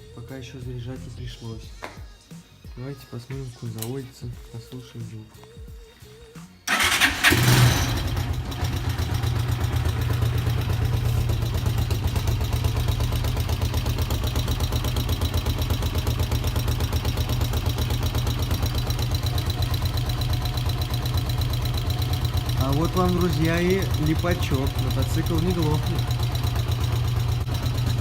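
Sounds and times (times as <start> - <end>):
motorcycle engine idling: 6.7 - 28.0.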